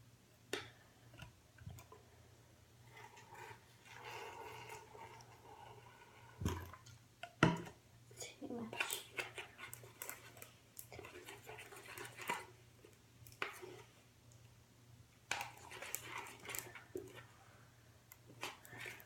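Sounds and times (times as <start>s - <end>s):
slime squelching in a bowl: 8.1s - 14.5s, 15.2s - 19.0s.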